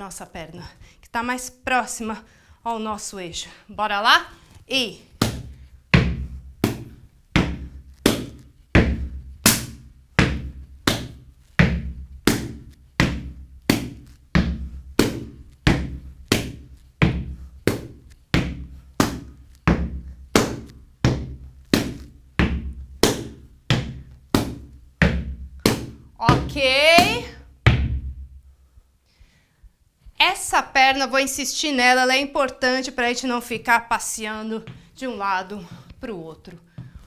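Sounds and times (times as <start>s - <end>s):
hands slapping rubber boots: 4.4s - 28.4s.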